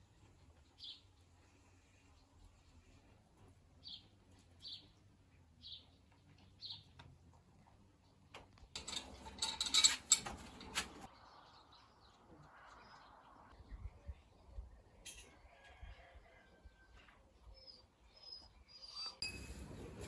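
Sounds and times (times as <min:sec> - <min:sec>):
clattering and rustling: 0:08.7 - 0:11.1.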